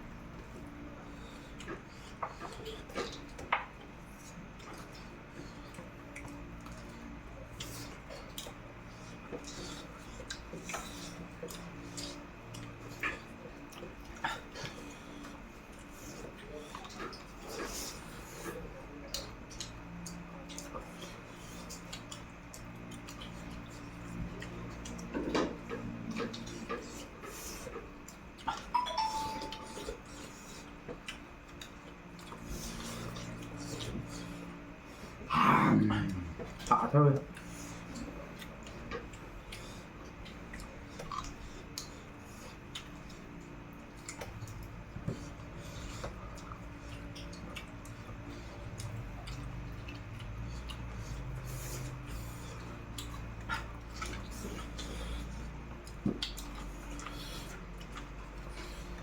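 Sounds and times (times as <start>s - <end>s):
chewing with wet clicks: 0.0s - 59.0s
steady low hum: 0.0s - 59.0s
chewing crunches: 30.0s - 59.0s.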